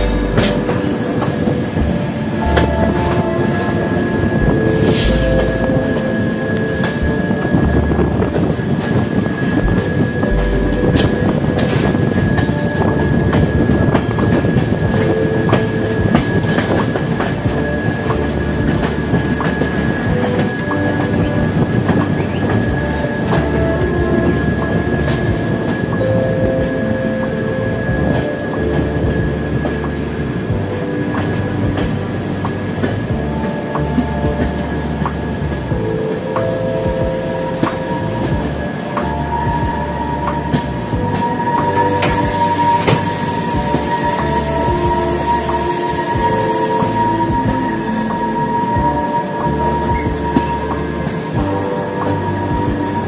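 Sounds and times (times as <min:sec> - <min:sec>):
train wheels rumbling: 0:00.0 - 0:53.0
wind buffeting microphone: 0:00.0 - 0:53.0.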